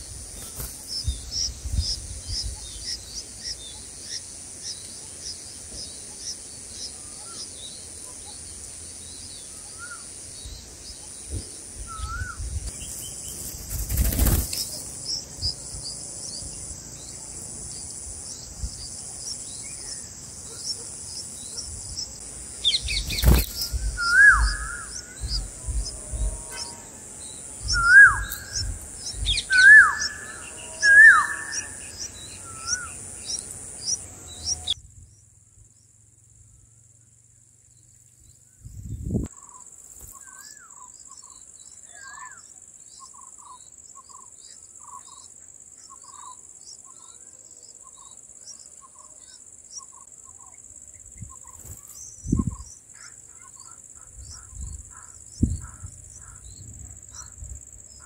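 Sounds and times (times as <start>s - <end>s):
high insect buzz: 0.0s - 34.8s
loud descending bird chirps: 27.6s - 33.0s.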